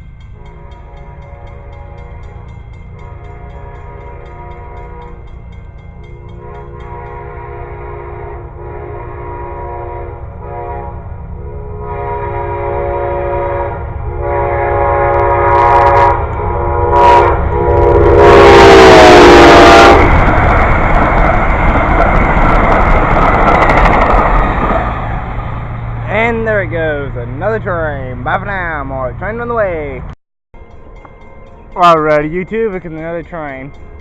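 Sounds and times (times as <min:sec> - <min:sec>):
train passing with loud rush: 0:00.0 - 0:34.0
train rumbling: 0:00.0 - 0:34.0
train air horn blasts: 0:00.4 - 0:05.3, 0:06.1 - 0:20.3.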